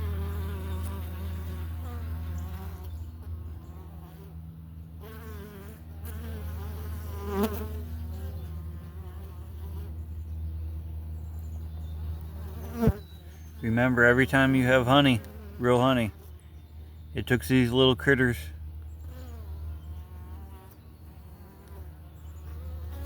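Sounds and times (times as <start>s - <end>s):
bees flying past buzzing: 0.0s - 4.4s, 5.0s - 10.2s, 12.1s - 16.6s, 19.0s - 23.0s
steady low hum of bees: 0.0s - 23.0s.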